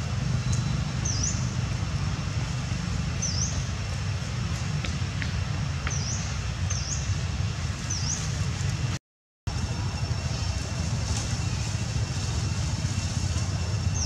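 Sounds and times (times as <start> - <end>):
bird chirping: 0.4 - 1.6, 5.9 - 7.2.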